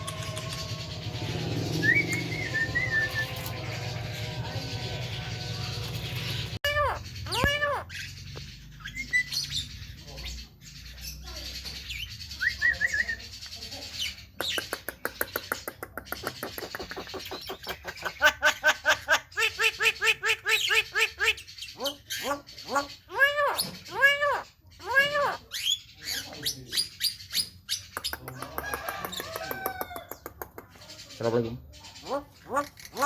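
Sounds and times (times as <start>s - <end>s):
bird whistled notes: 0.0s - 4.4s
bird clicks and chattering: 13.3s - 18.2s, 27.7s - 31.2s.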